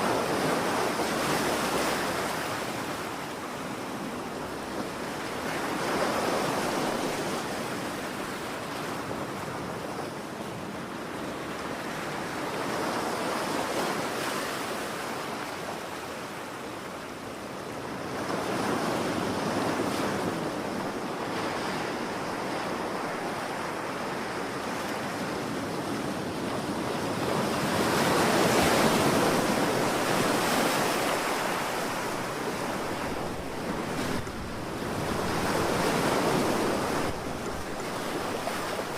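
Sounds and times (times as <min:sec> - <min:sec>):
ocean waves breaking on shore: 0:00.0 - 0:38.9
wind: 0:00.0 - 0:38.9.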